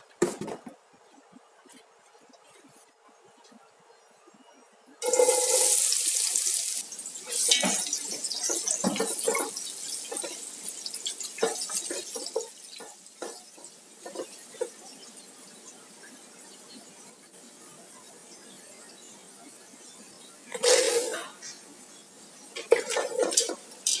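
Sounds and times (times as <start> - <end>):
water pouring: 5.0 - 12.5.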